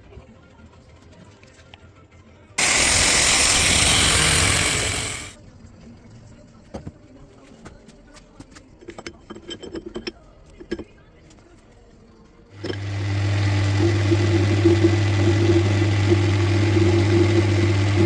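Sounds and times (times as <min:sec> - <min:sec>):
loud rushing hiss: 0:02.6 - 0:05.4.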